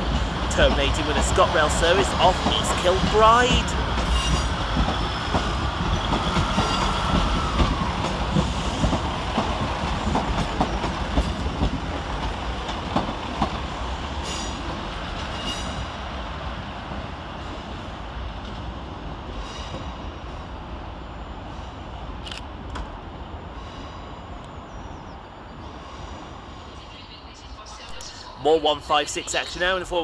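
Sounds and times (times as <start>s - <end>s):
train wheel squeal: 4.0s - 8.9s, 15.3s - 15.9s.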